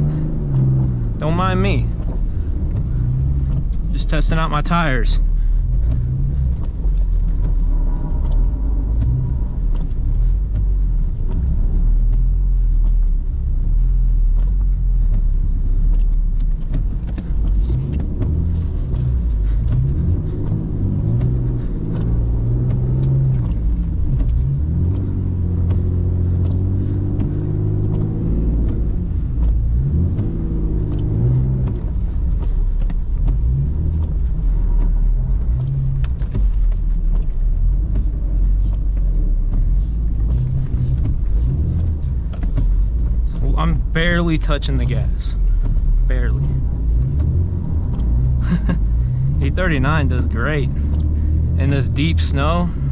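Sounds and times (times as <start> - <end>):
car engine revving: 0.0 - 52.9.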